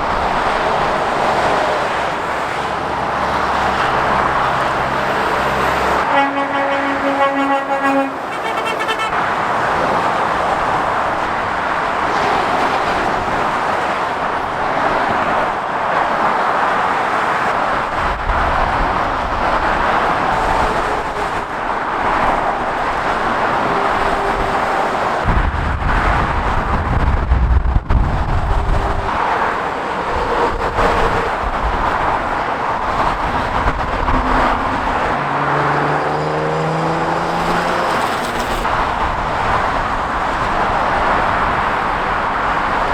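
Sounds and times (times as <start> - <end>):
heavy lorries rumbling past: 0.0 - 42.9
motorway traffic roar: 0.0 - 42.9
vehicle engine pulling away: 34.4 - 38.6.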